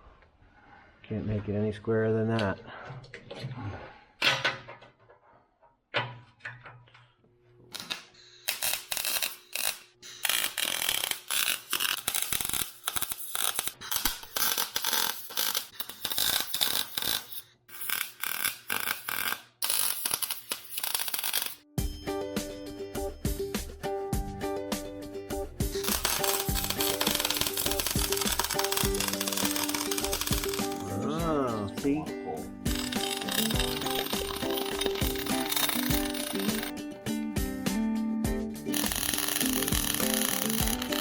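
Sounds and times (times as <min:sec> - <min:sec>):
welding arc crackling: 0:07.7 - 0:21.6, 0:25.7 - 0:30.9, 0:32.7 - 0:36.7, 0:38.7 - 0:41.0
background music: 0:21.7 - 0:41.0.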